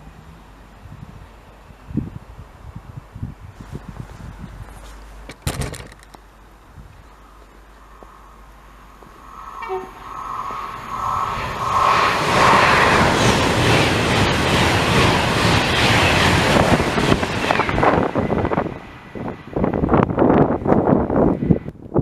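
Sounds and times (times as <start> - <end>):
wind buffeting microphone: 0.7 - 6.0, 6.6 - 7.1, 9.0 - 22.0
train passing: 7.2 - 21.7.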